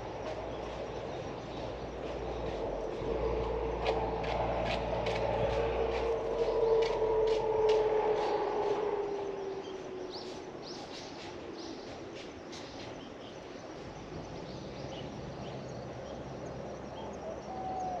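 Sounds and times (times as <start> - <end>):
small birds chirping: 0.0 - 7.0, 9.3 - 18.0
vehicle passing: 0.0 - 10.6
outdoor background hum: 0.0 - 18.0.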